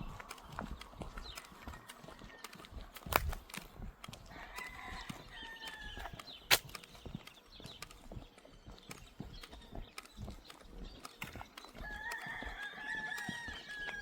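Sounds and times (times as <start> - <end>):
rooster crowing: 4.2 - 6.2, 11.8 - 14.0.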